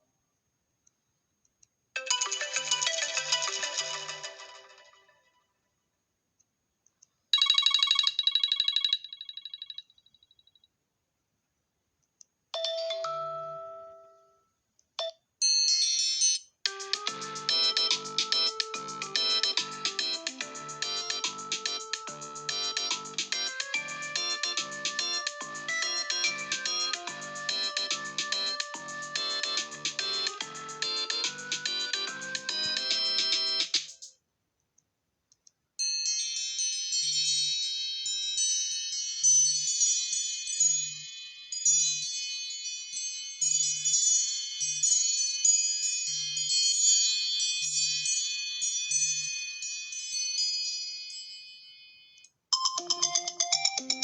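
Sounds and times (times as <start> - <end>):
fast repeating ringtone melody: 2.0 - 5.3, 7.4 - 10.0, 16.0 - 33.9, 52.6 - 54.0
ringing chime: 7.4 - 10.3.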